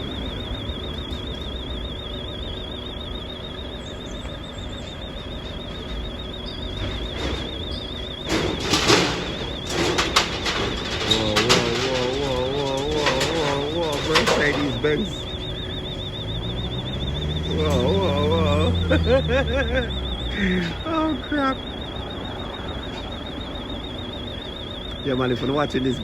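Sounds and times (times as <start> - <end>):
low engine rumble: 0.0 - 26.0
metallic clanks and rattles: 6.7 - 19.2.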